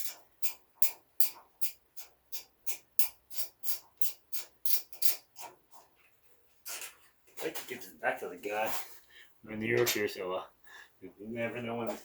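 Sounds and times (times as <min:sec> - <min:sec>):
ratchet clicking: 0:00.0 - 0:05.3.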